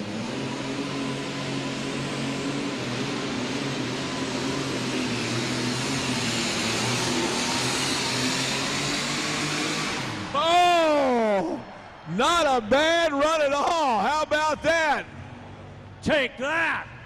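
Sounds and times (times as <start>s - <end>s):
tractor engine running under load: 0.0s - 10.4s.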